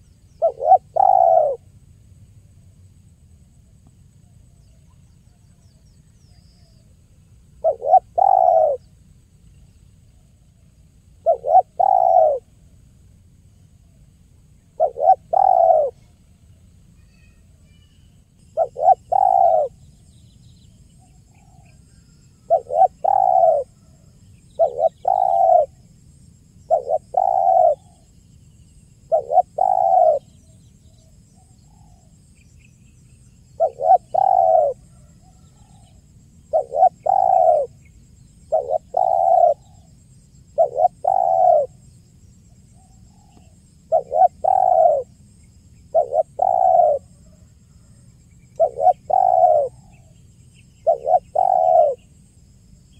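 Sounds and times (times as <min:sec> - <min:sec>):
dove cooing: 0:00.0 - 0:01.7, 0:07.6 - 0:08.9, 0:11.2 - 0:12.6, 0:14.7 - 0:16.2, 0:18.4 - 0:19.8, 0:21.4 - 0:25.9, 0:26.7 - 0:28.1, 0:29.1 - 0:30.4, 0:33.5 - 0:41.8, 0:42.8 - 0:45.1, 0:45.9 - 0:48.0, 0:48.6 - 0:50.2, 0:50.8 - 0:52.1.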